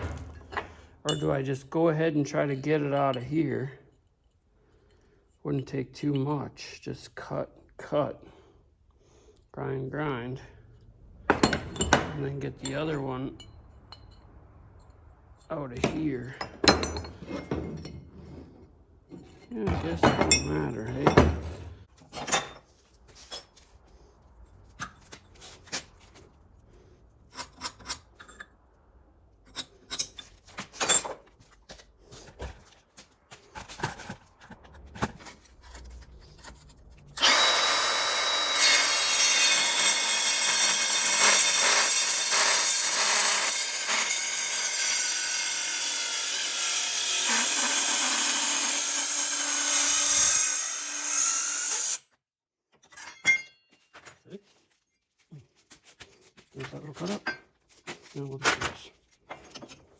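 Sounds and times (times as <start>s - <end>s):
power tool cutting metal: 37.2s - 52.0s.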